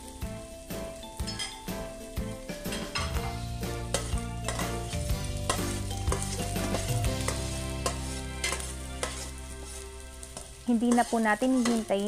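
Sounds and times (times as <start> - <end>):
onion and garlic sizzling in oil: 0.0 - 12.0
spatula scraping a pot: 5.4 - 12.0.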